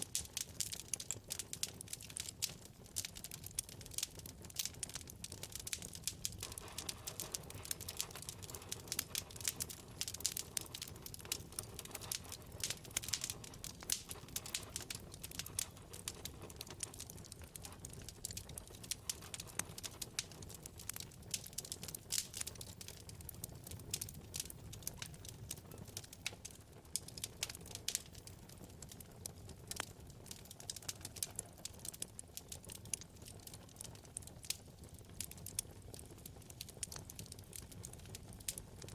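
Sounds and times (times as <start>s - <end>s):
low rumble of flames: 0.0s - 38.9s
wood fire crackling and popping: 0.0s - 38.9s.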